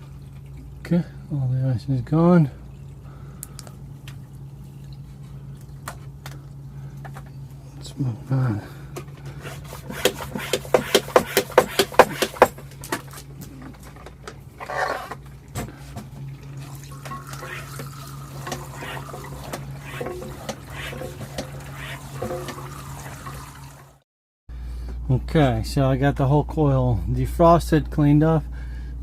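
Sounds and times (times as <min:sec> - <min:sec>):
steady low hum: 0:00.0 - 0:23.4
sharp knocks: 0:09.9 - 0:12.6
water running and splashing: 0:16.3 - 0:24.0.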